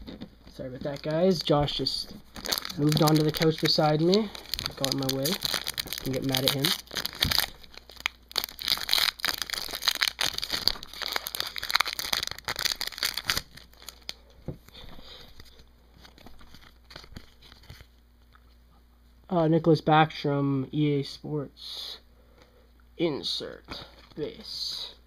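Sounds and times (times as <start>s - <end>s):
foil wrapper crinkling and tearing: 0.7s - 17.9s.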